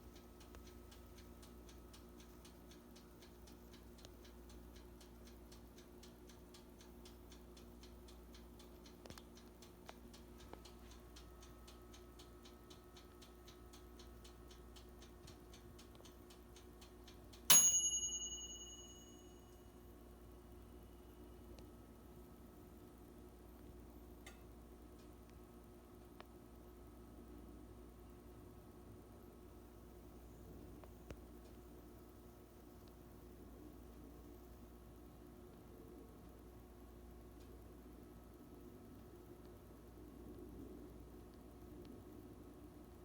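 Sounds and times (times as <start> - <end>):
faint regular ticking: 0.0 - 21.8, 22.4 - 26.4, 29.6 - 43.0
bright metallic ding: 17.5 - 19.6.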